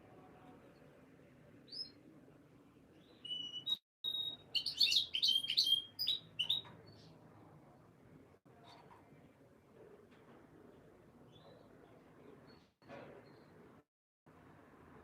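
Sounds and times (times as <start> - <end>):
canary chirping and whistling: 3.2 - 6.7.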